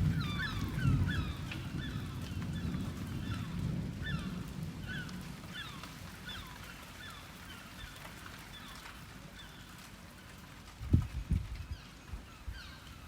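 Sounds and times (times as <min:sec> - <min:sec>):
distant thunder rumble: 0:00.0 - 0:05.6.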